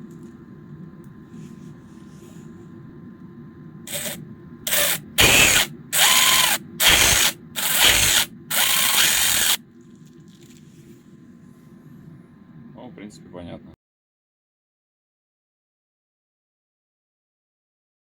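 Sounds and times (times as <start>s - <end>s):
cordless impact wrench bursts: 3.9s - 9.6s.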